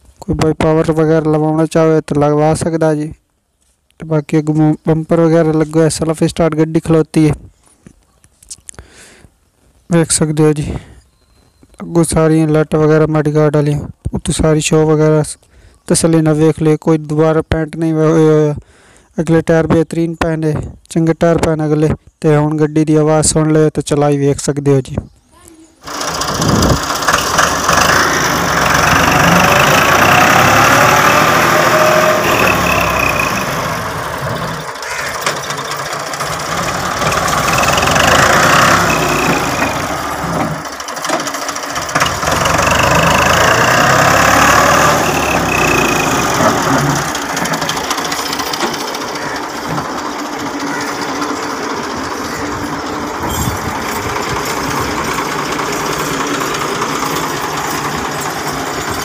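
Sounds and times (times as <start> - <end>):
tractor diesel engine revving: 25.8 - 59.0
tractor engine idling: 25.8 - 59.0.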